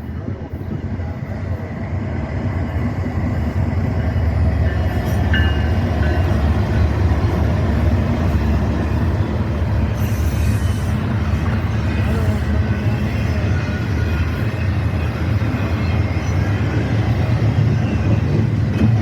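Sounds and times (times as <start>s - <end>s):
freight train wheels rumbling on rail: 0.0s - 19.0s.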